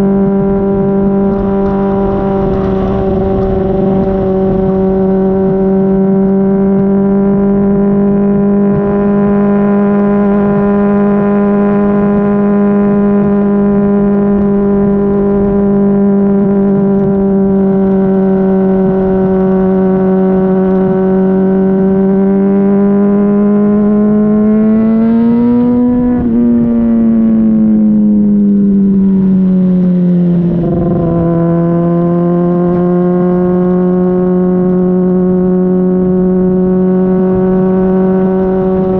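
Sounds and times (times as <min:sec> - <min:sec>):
motorcycle exhaust note: 0:00.0 - 0:38.9.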